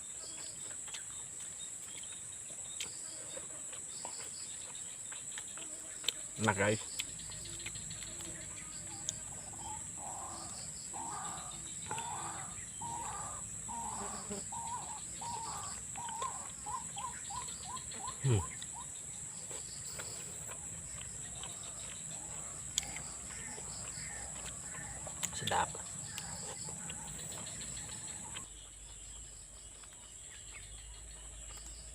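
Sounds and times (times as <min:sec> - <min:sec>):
high insect drone: 0:02.0 - 0:31.9
bird calling: 0:07.5 - 0:20.6, 0:21.2 - 0:28.5.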